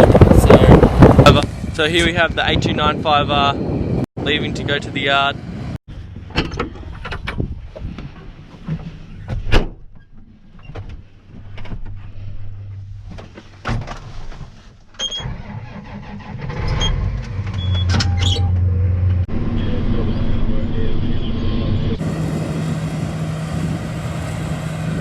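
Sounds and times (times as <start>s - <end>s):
vehicle engine humming: 17.1s - 25.0s.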